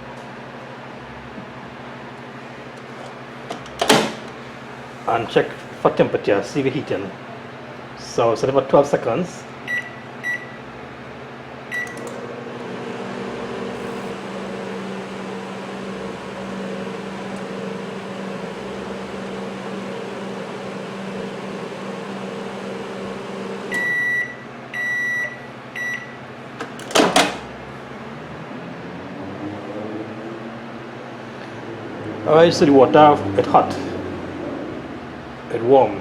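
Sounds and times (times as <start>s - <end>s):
microwave humming: 0.0s - 6.6s, 9.6s - 28.1s
microwave door clunk: 3.5s - 4.4s, 26.6s - 27.5s
microwave beeps: 9.7s - 10.6s, 11.7s - 12.2s, 23.7s - 26.2s.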